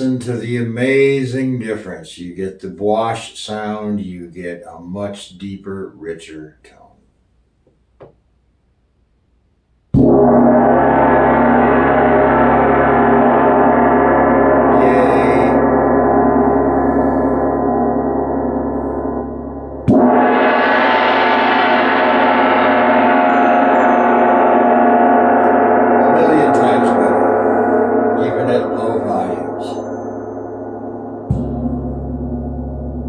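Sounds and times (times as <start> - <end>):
gong struck and ringing: 10.0 - 33.0.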